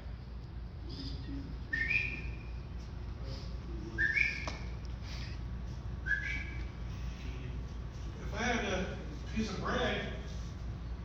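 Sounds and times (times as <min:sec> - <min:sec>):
two-note whistles: 0:01.7 - 0:02.6, 0:04.0 - 0:04.8, 0:06.0 - 0:06.7.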